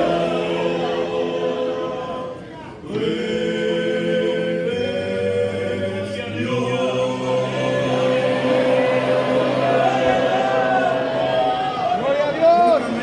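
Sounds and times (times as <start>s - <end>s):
group singing a worship song: 0.0s - 12.0s.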